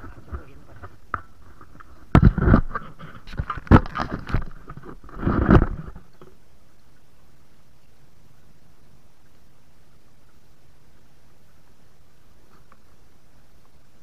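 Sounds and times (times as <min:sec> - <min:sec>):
camera handling knocks and scrapes: 0:00.3 - 0:06.0.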